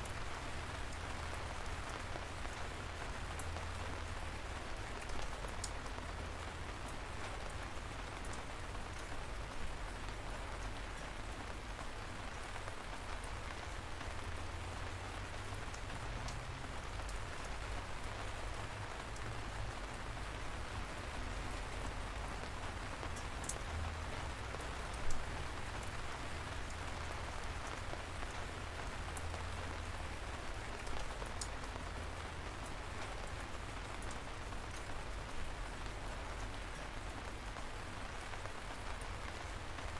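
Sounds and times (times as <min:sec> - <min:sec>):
light rain drizzle hiss: 0:00.0 - 0:39.9.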